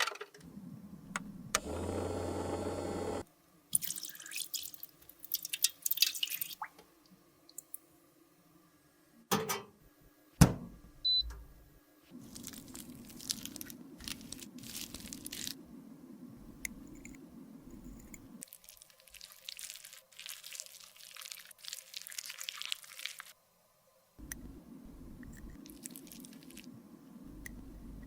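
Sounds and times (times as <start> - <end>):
crackly scraping and squishing: 12.1 - 15.7, 16.3 - 23.4, 25.1 - 28.0.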